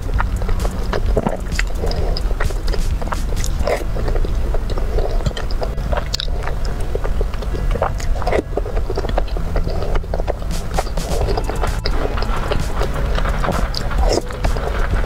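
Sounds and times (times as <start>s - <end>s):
steady low hum: 0.0s - 15.0s
wet chewing and slurping: 0.0s - 15.0s.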